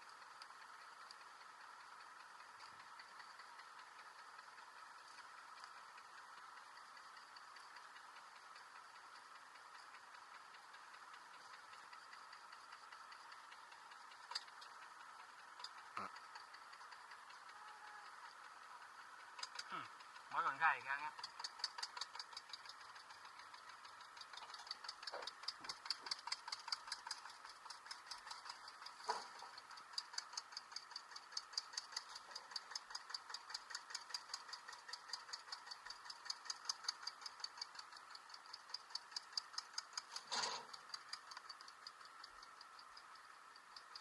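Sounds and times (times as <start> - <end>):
faint even ticking: 0.0 - 44.0.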